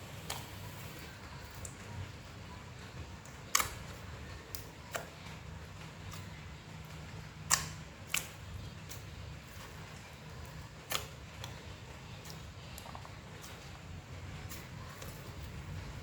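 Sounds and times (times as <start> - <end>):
slime popping and clicking: 3.5 - 5.2, 7.4 - 9.0, 10.9 - 11.6.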